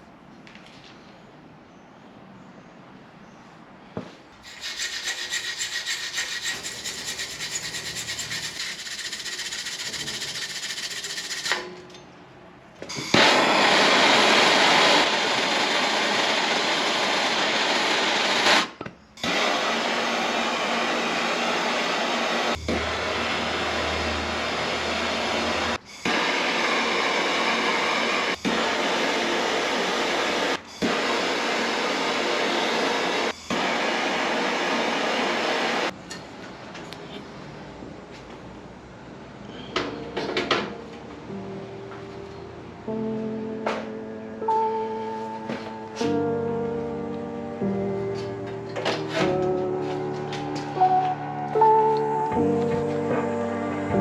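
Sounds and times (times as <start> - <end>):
tools grinding metal tubing: 4.4 - 12.1.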